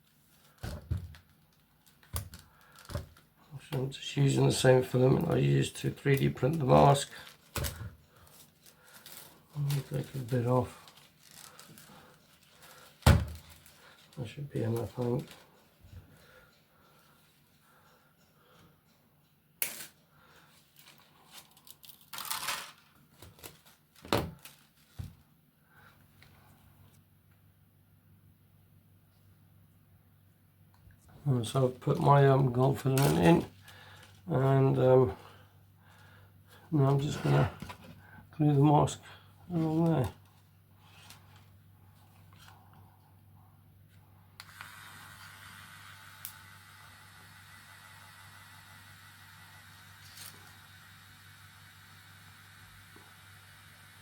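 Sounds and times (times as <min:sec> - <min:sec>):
filament rustling: 0:00.0 - 0:16.4, 0:20.4 - 0:25.3, 0:31.0 - 0:38.6.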